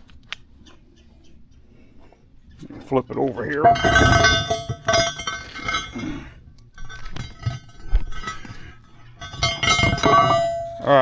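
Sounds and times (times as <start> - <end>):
steel part clanking on metal: 3.5 - 11.0.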